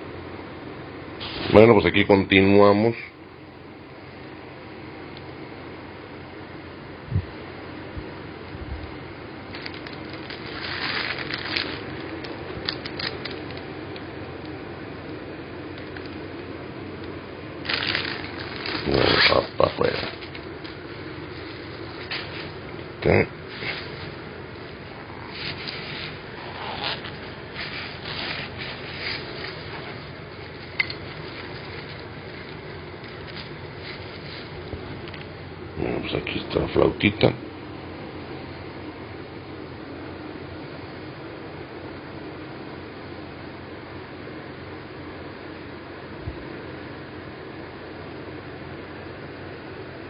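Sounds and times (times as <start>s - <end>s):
steady low hum: 0.0s - 50.0s
packaging rustling and crinkling: 9.5s - 13.7s, 17.7s - 22.7s, 23.5s - 35.2s.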